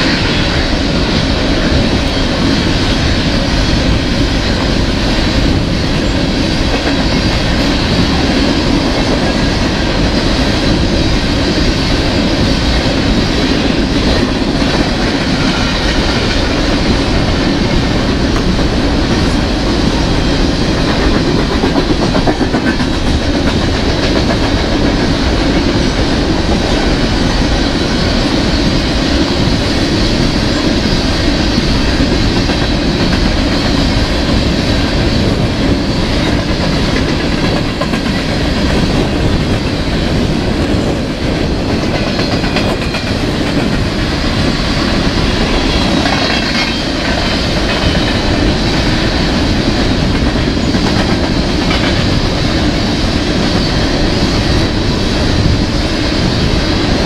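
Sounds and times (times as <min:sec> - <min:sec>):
rumble of train wheels on rail: 0:00.0 - 0:57.0
wheels clicking over rail joints: 0:00.2 - 0:55.7.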